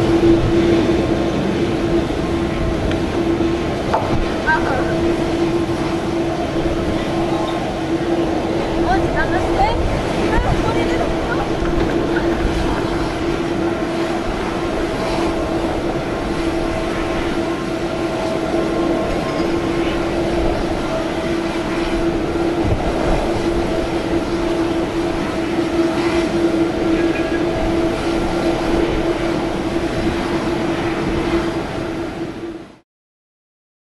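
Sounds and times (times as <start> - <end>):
jet engines droning: 0.0 - 32.8.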